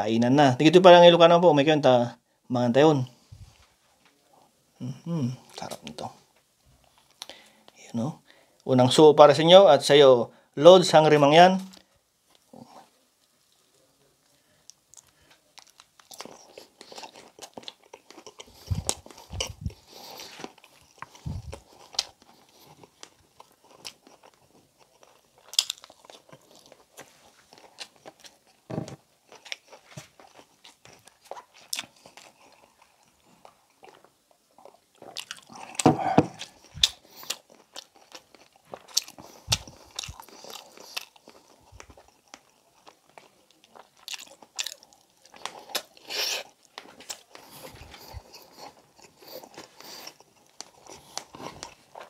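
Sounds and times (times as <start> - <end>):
man biting and chewing: 14.7 - 52.0.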